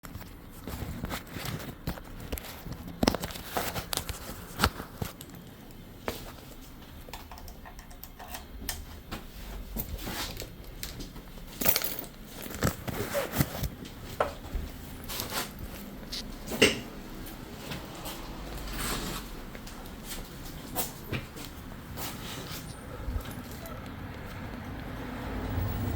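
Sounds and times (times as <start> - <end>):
objects clicking and rattling: 7.0 - 8.9, 9.7 - 14.4.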